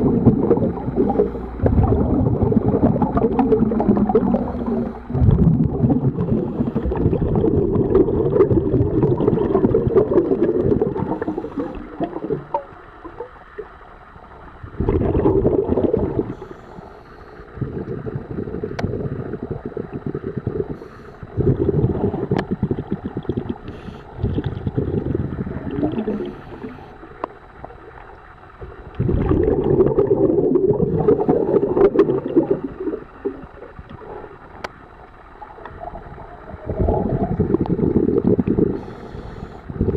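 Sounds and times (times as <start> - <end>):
underwater exhaled bubbles gurgling: 0.0 - 39.9
faint ticks: 18.6 - 19.4, 22.3 - 24.7, 26.2 - 29.0, 32.7 - 36.2.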